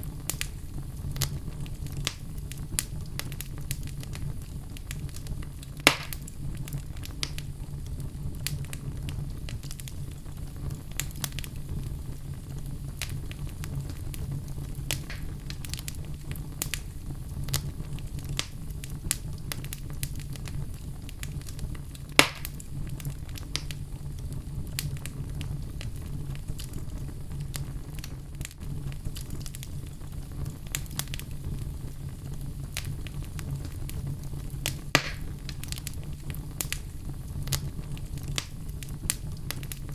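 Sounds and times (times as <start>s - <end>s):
fire crackling and snapping: 0.0s - 39.9s
low rumble of fire: 0.0s - 39.9s
loud fire pop: 5.8s - 6.4s, 14.9s - 16.0s, 22.1s - 22.7s, 34.6s - 36.0s.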